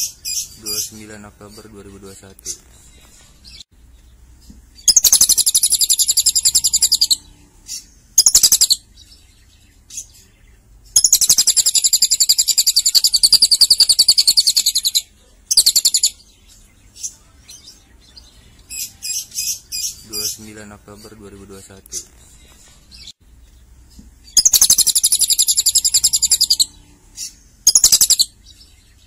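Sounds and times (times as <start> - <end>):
lovebird trilled chatter: 4.8 - 7.2, 8.2 - 8.8, 10.9 - 16.2, 24.3 - 28.3.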